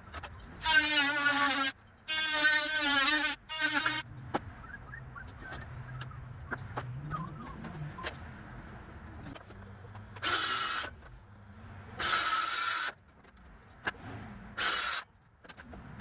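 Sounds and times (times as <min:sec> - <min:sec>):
handheld power tool bursts: 0:12.0 - 0:12.9.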